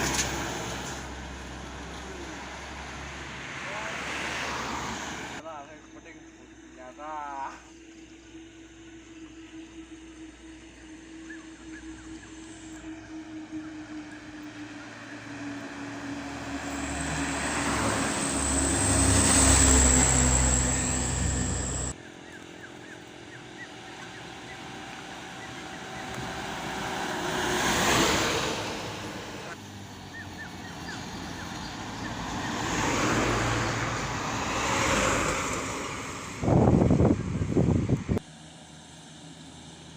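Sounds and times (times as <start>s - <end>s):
trucks driving past: 0.0s - 39.9s.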